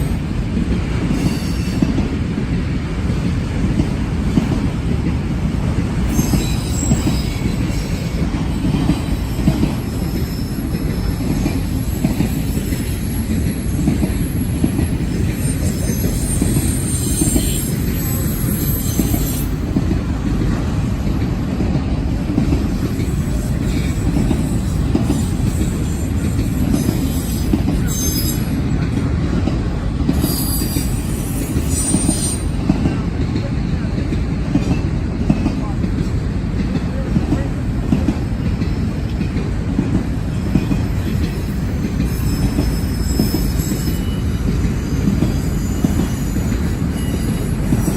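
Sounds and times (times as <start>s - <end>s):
train wheels rumbling on rails: 0.0s - 47.9s
high-pitched wheel squeals: 6.1s - 8.2s, 9.0s - 19.6s, 23.1s - 28.7s, 30.2s - 32.6s, 40.6s - 47.9s.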